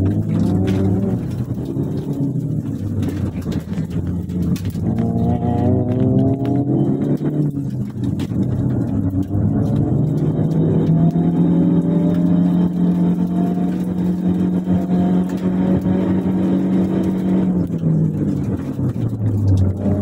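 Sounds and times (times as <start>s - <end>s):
car engine accelerating: 0.0s - 20.0s
small rattles and clicks: 0.0s - 20.0s.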